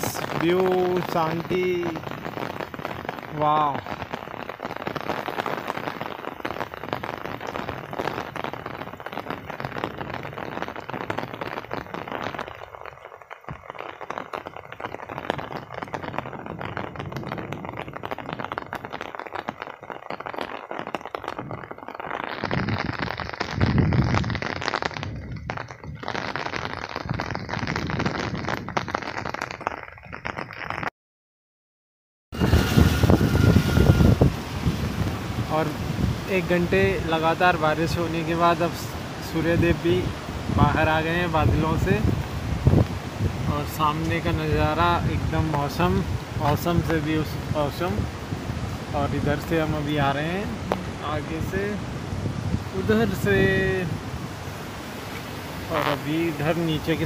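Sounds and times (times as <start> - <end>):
light rain pattering: 0.0 - 30.9, 32.4 - 57.0
wind buffeting microphone: 15.2 - 18.6, 22.4 - 28.9, 32.4 - 38.1, 38.7 - 56.0.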